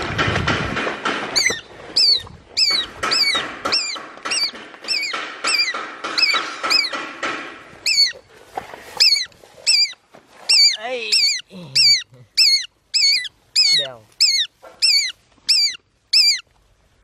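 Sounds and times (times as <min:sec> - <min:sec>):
rustling through grass: 0:08.1 - 0:11.1
bird calling high notes: 0:09.0 - 0:16.4.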